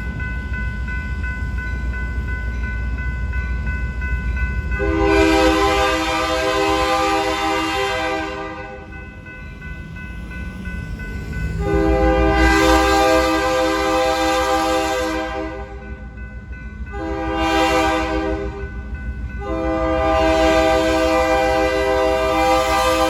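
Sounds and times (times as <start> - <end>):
low rumble of train: 0.0 - 23.0
locomotive air horn blasts: 4.8 - 8.9, 11.6 - 15.8, 16.9 - 18.6, 19.4 - 23.0.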